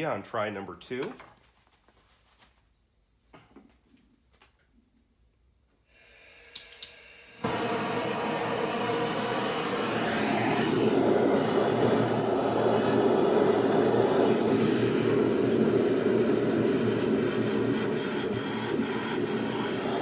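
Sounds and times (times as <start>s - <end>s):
gas burner flame roaring: 6.2s - 20.0s.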